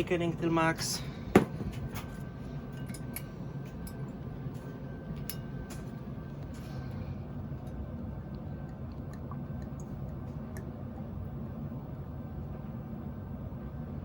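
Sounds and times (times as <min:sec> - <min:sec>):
steady low hum: 0:00.0 - 0:14.0
liquid being poured: 0:07.7 - 0:11.3.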